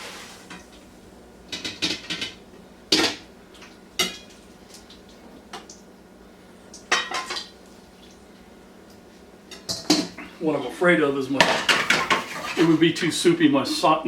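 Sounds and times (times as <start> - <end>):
metal cookware clinking: 6.9 - 7.5.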